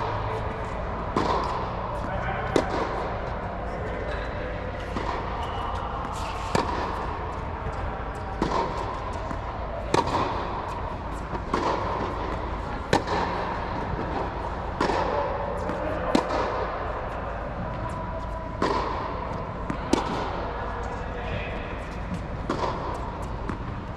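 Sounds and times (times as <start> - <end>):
tennis balls struck by rackets: 0.0 - 23.9.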